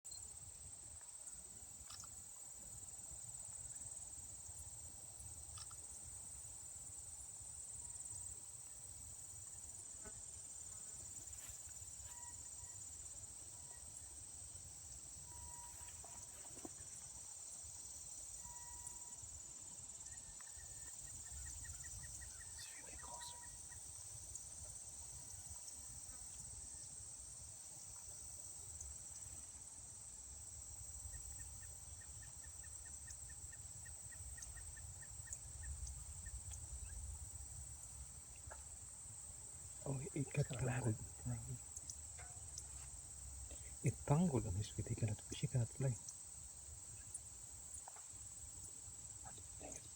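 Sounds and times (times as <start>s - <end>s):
insects singing: 9.2s - 26.9s, 30.6s - 49.9s.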